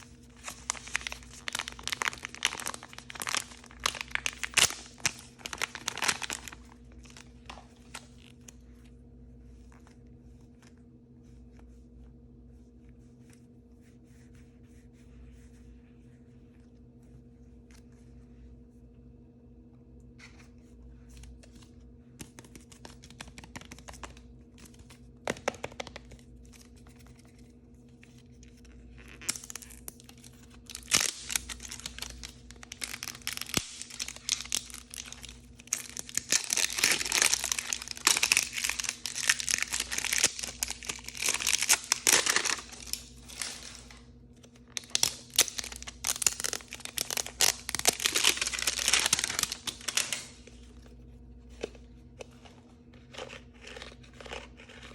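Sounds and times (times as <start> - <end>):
crinkly packaging being torn open: 0.0 - 8.3, 22.3 - 24.2, 29.1 - 50.6.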